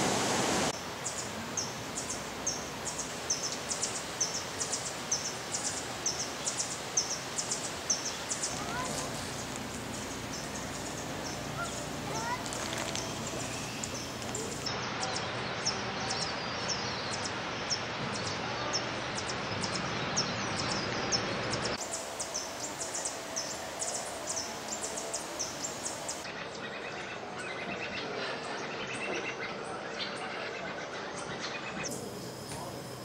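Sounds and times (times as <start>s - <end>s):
background hiss: 0.0s - 14.8s, 21.7s - 26.3s, 31.9s - 33.0s
high-pitched bird chips: 8.4s - 14.7s.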